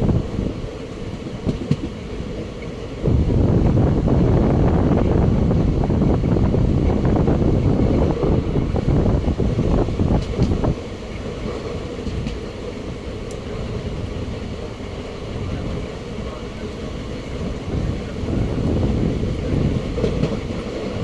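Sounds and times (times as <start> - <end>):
steady rail rumble: 0.0 - 21.0
train passing with wheel clatter: 0.0 - 21.0.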